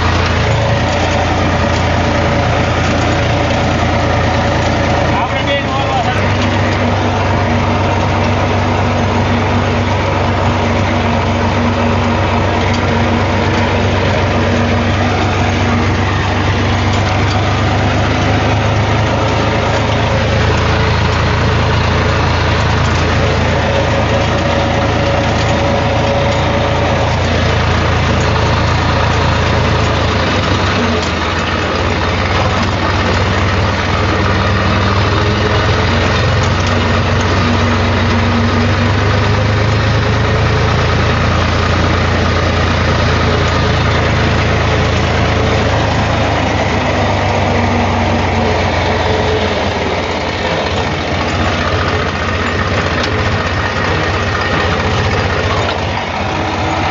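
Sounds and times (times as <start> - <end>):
tractor diesel engine humming: 0.0 - 56.9.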